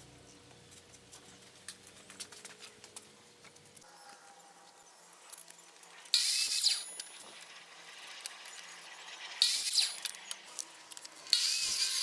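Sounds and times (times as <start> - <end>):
handheld power tool whining: 6.0 - 12.0.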